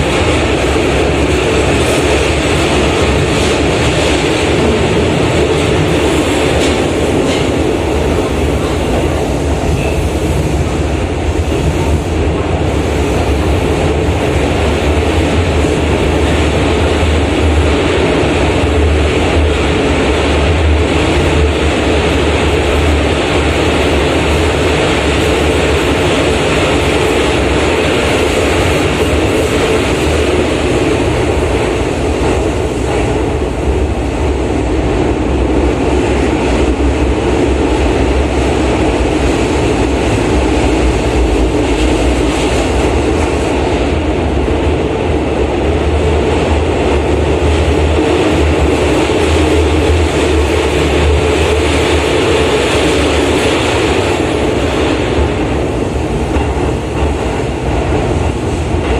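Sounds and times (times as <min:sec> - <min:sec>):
train wheels rumbling on rails: 0:00.0 - 0:58.9.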